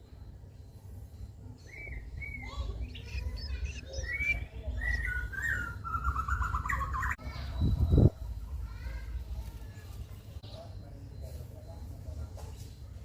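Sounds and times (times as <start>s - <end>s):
bird chirping and trilling: 1.1s - 9.6s.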